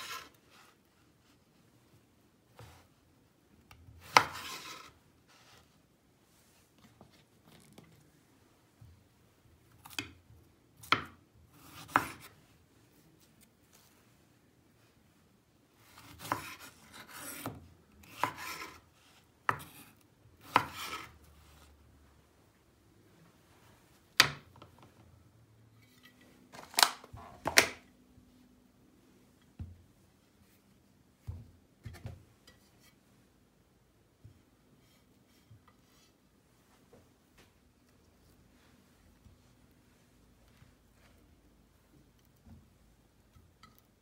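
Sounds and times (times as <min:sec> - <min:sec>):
knife chopping on cutting board: 0:10.8 - 0:12.3, 0:15.9 - 0:18.8, 0:19.5 - 0:21.1.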